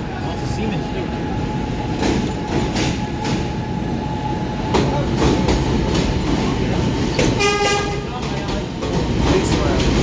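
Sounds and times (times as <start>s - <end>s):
train wheels rumbling on rail: 0.0s - 10.0s
wheels clacking over rail joints: 4.7s - 10.0s.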